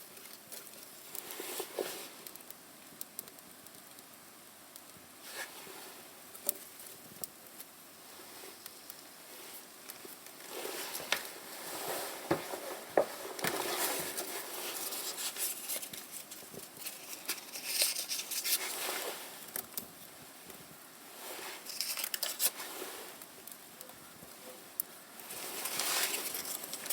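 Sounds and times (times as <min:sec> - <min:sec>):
kindling crackling clicks: 0:02.2 - 0:05.0, 0:06.3 - 0:07.8, 0:08.6 - 0:09.1, 0:19.4 - 0:20.6, 0:21.6 - 0:26.9
paper rustling: 0:09.9 - 0:19.5, 0:21.4 - 0:22.8, 0:25.3 - 0:26.9.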